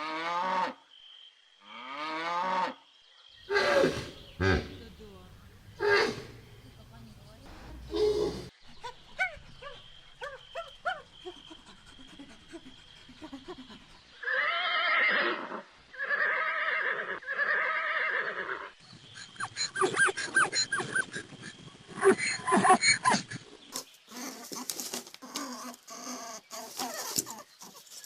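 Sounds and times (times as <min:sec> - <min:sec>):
animal chirps and calls: 0:18.9 - 0:23.3.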